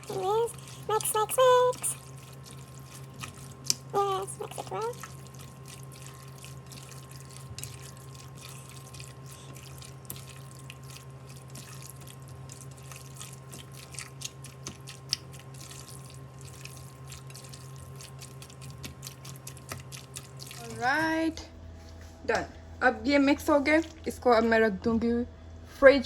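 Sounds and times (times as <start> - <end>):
steady low hum: 0.0 - 26.0
wet clicks and squelches: 0.5 - 20.8.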